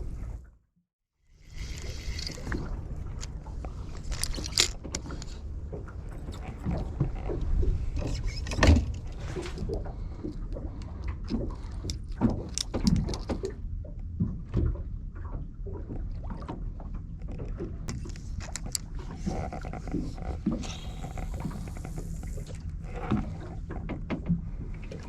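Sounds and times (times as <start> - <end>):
boat engine rumble: 1.2 - 25.0
gear knocking and rattling: 1.5 - 5.4.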